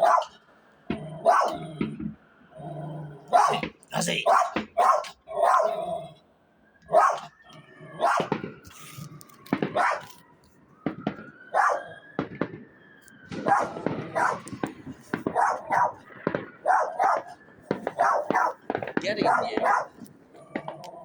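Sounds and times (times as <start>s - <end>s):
dog barking: 0.0s - 0.4s, 1.2s - 1.7s, 3.2s - 5.9s, 6.9s - 8.4s, 9.6s - 10.2s, 11.5s - 12.0s, 13.4s - 21.0s.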